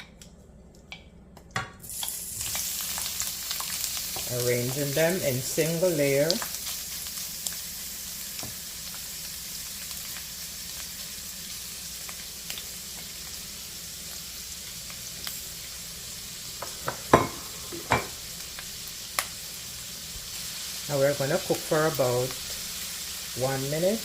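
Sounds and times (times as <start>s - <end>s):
shrimp sizzling in hot oil: 1.8s - 24.0s.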